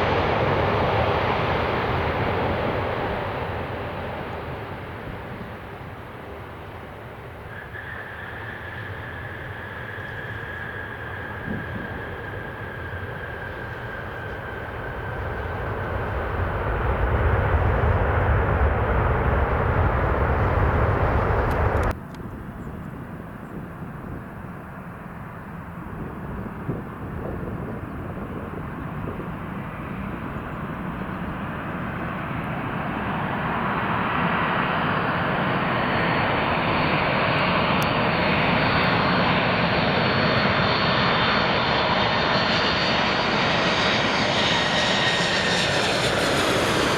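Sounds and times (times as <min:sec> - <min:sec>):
jet engine whine rising in pitch: 0:00.0 - 0:22.0, 0:26.0 - 0:46.9
jet engines rumbling: 0:00.0 - 0:46.9.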